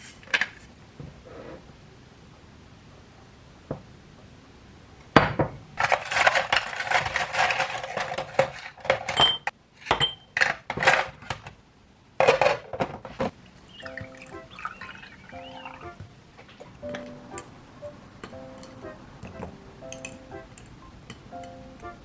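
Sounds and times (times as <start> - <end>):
dishes and utensils clattering: 5.2 - 11.2, 18.2 - 21.8.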